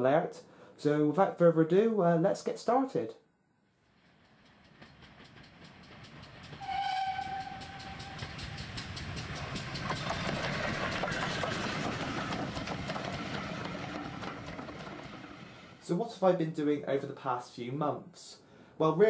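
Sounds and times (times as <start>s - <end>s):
train rhythmic beat: 3.9s - 15.5s
train whistle: 6.6s - 8.9s.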